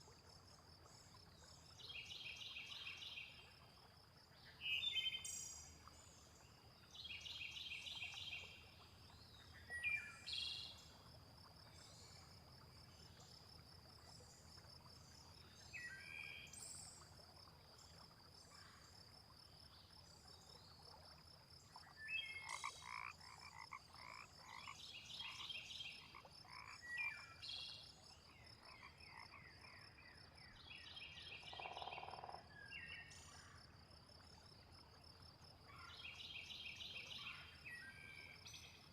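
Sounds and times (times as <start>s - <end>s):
frogs croaking: 21.0s - 30.6s, 31.3s - 32.6s.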